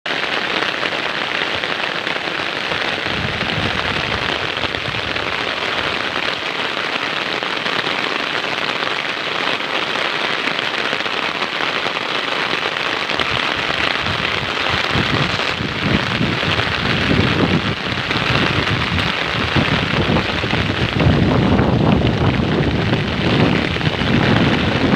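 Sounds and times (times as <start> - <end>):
steady rain falling: 0.1 - 24.9
low rumbling: 13.7 - 24.9.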